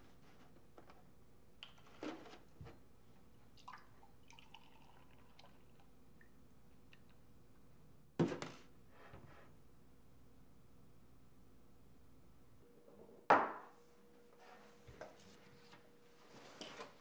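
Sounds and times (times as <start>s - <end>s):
milk pouring into a glass: 3.6s - 6.0s.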